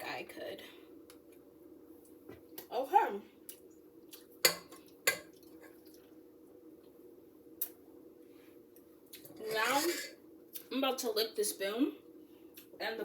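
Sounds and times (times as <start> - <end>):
utensils clinking against dishes: 9.4 - 10.2.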